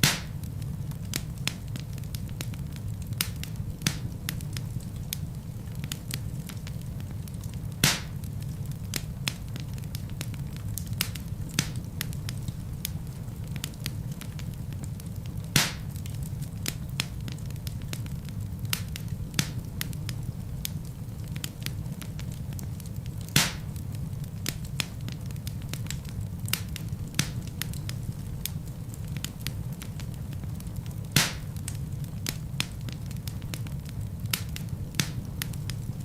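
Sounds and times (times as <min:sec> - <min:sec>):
logs popping: 0:00.0 - 0:00.4, 0:07.8 - 0:08.3, 0:15.5 - 0:16.3, 0:23.3 - 0:23.7, 0:31.1 - 0:32.4
fire crackling in a fireplace: 0:00.0 - 0:36.0.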